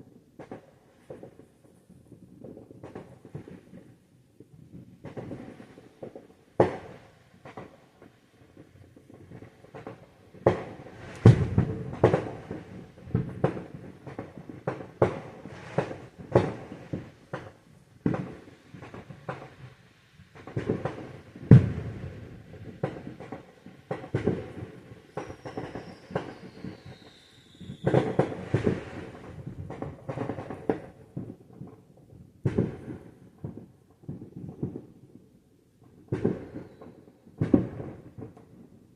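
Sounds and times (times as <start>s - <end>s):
fireworks bangs and crackles: 0.0s - 38.9s
falling firework whistle: 24.2s - 29.3s, 36.3s - 37.0s.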